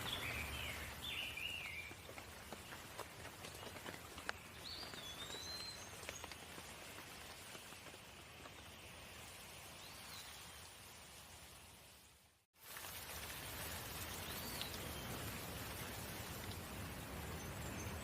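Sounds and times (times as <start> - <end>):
light rain falling: 0.0 - 18.0
water drips ticking: 12.6 - 17.9.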